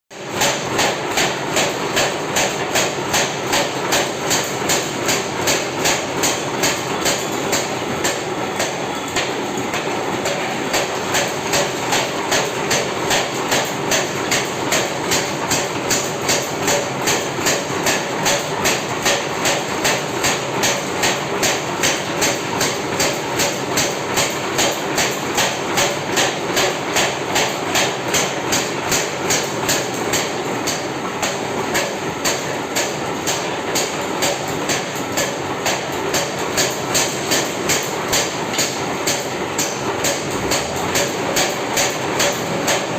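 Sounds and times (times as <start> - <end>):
hammer striking hot iron: 0.2 - 42.9.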